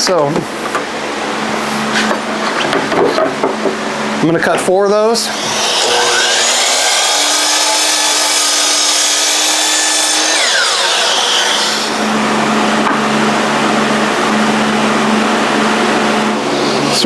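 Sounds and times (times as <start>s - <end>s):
power saw cutting wood: 5.3s - 12.9s.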